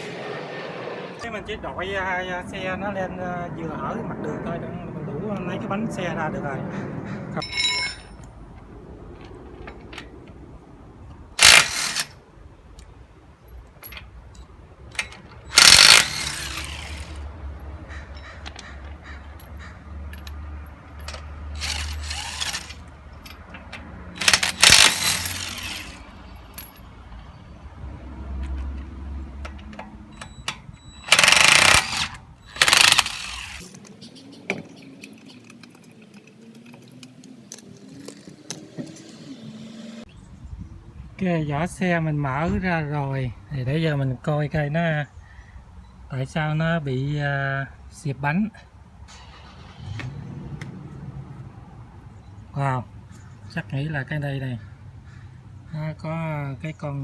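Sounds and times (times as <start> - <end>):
metal tools clinking: 7.4 - 8.3, 19.3 - 27.0, 29.5 - 34.0
wrench rattling on lug nuts: 11.4 - 12.1, 14.9 - 17.2, 19.4 - 26.9, 30.9 - 33.7.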